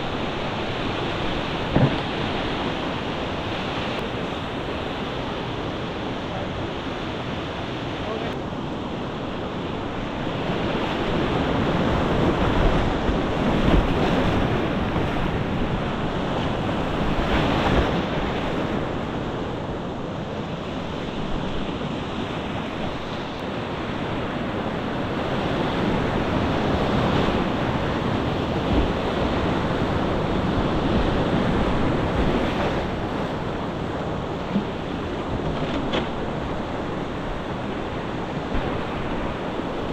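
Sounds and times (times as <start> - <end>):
whitewater rapids rushing: 0.0 - 8.4
wind buffeting microphone: 0.0 - 39.9.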